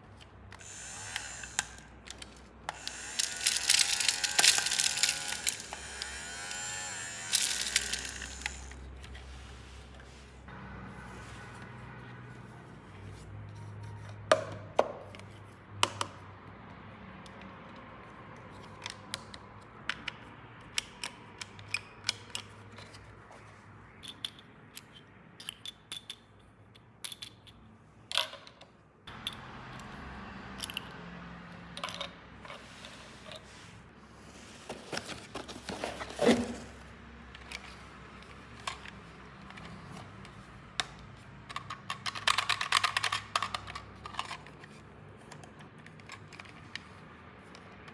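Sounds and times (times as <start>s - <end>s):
plastic toy pieces clicking: 0.5s - 6.2s, 7.2s - 8.8s, 24.0s - 28.6s, 40.8s - 44.7s.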